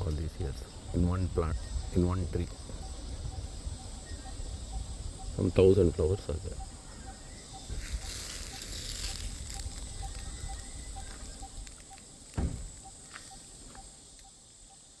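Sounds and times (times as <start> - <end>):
high-pitched insect drone: 0.1 - 15.0
thump: 12.3 - 12.8.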